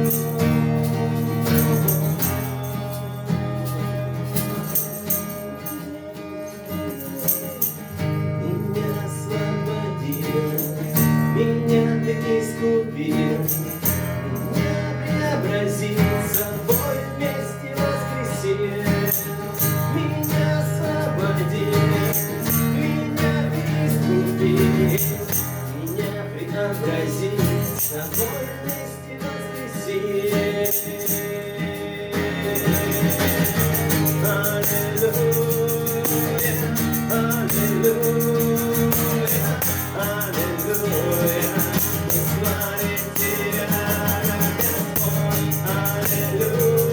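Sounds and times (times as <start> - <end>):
jingling percussion: 0.0 - 46.9
band playing praise music: 29.8 - 46.9.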